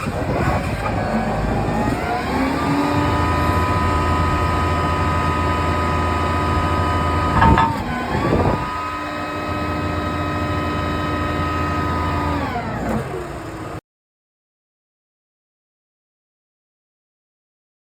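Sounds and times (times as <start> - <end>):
diesel engine revving: 0.0 - 13.8.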